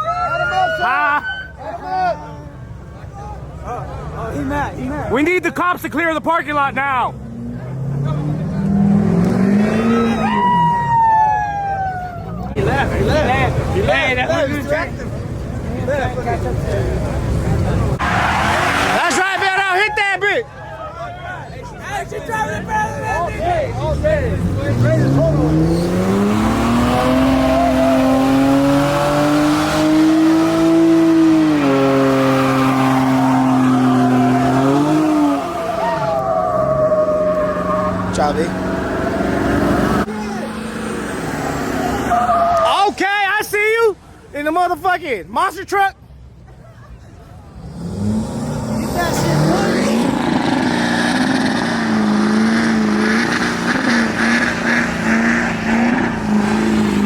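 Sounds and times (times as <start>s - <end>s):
car engine revving high: 7.2s - 10.4s, 18.0s - 19.3s, 23.9s - 42.4s, 47.6s - 57.0s.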